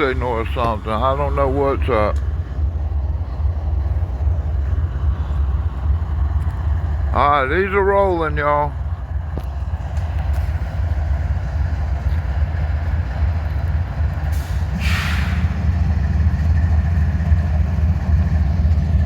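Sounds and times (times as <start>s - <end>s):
diesel locomotives rumbling: 0.0s - 19.0s
air hissing: 14.3s - 15.6s.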